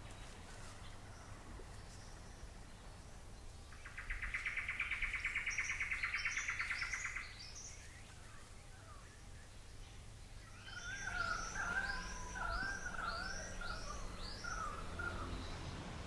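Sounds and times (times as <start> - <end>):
high bird chirps: 10.4 - 15.7
bird trilling: 10.5 - 15.6.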